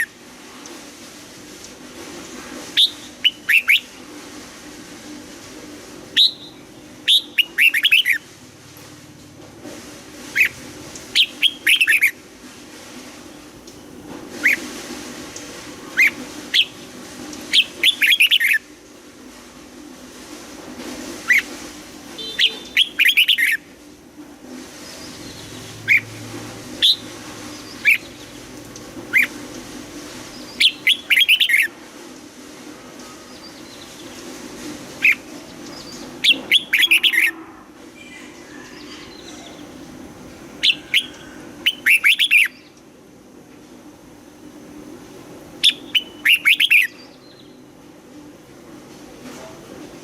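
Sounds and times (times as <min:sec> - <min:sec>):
bird whistling song: 0:02.8 - 0:03.9, 0:06.2 - 0:08.2, 0:10.4 - 0:10.6, 0:11.2 - 0:12.2, 0:16.0 - 0:16.7, 0:17.5 - 0:18.7, 0:22.2 - 0:23.6, 0:24.8 - 0:26.1, 0:26.8 - 0:28.3, 0:29.1 - 0:29.3, 0:30.3 - 0:31.7, 0:35.0 - 0:37.4, 0:40.6 - 0:42.8, 0:45.6 - 0:47.6.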